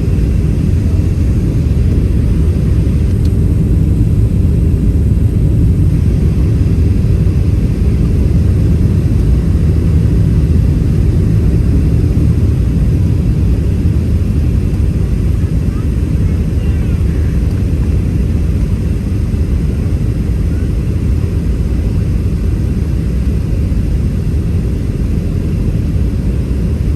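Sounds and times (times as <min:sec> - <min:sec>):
low rumble inside plane cabin: 0:00.0 - 0:26.9.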